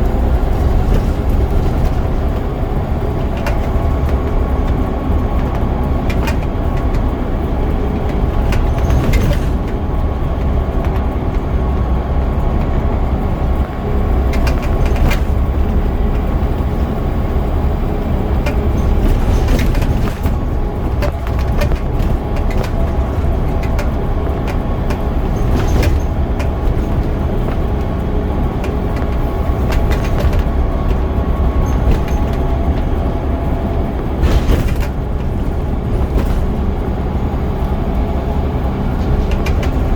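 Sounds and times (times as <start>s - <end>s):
bus body clicks and rattles: 0.0s - 39.9s
bus diesel engine running: 0.0s - 39.9s.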